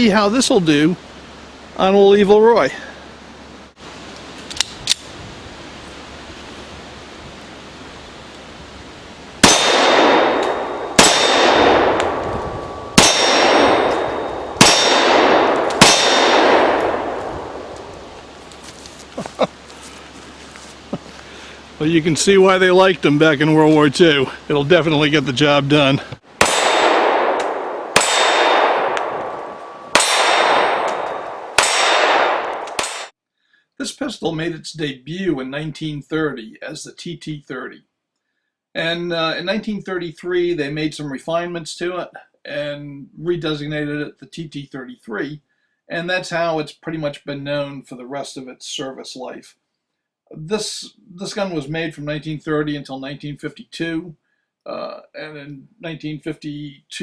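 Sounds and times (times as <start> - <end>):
steel target ringing: 9.4 - 17.2
pistol shots: 9.4 - 17.8, 26.4 - 33.1.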